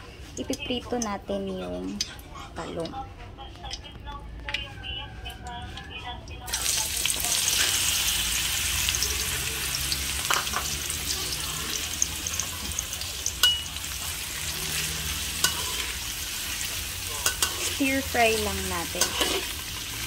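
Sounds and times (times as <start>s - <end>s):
eggplant sizzling in oil: 6.5s - 20.0s
metal spatula clinking on wok: 13.3s - 14.1s, 15.4s - 15.9s, 17.1s - 17.8s, 18.4s - 19.5s.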